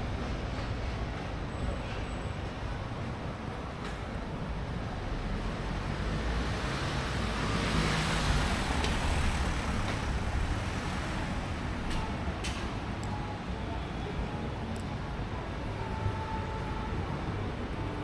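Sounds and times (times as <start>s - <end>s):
street traffic rumble: 0.0s - 18.0s
vehicle passing: 5.1s - 11.8s.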